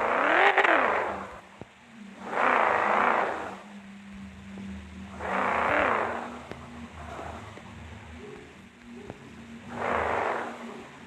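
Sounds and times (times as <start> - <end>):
car engine revving: 0.0 - 3.9, 5.1 - 8.3, 9.6 - 11.0.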